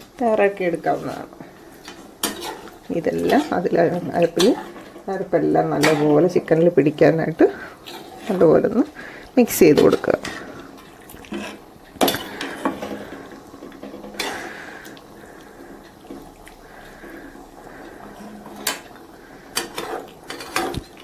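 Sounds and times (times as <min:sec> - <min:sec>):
spoon scraping a cooking pot: 0:01.8 - 0:05.1, 0:07.6 - 0:08.6, 0:09.8 - 0:14.6, 0:19.5 - 0:21.0.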